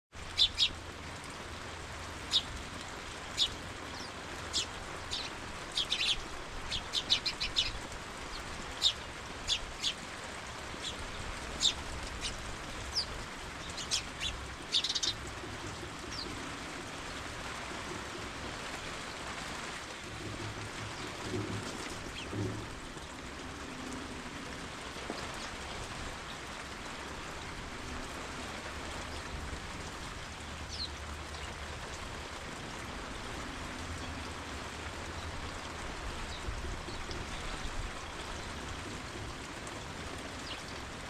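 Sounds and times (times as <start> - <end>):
rain hissing: 0.1 - 41.0
birds chirping: 0.2 - 1.4, 2.1 - 16.5, 30.3 - 32.0.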